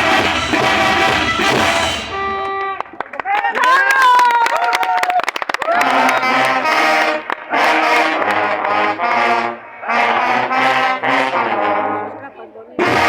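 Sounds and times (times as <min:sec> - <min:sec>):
brass band playing chords: 0:00.0 - 0:03.2, 0:05.8 - 0:13.0.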